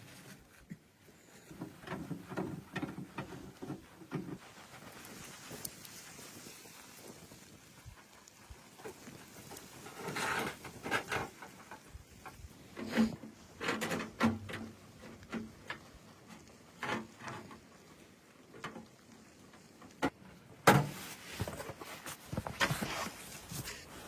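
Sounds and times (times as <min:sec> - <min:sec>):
rustling: 0:00.0 - 0:24.0
objects knocking and clattering: 0:10.0 - 0:15.9.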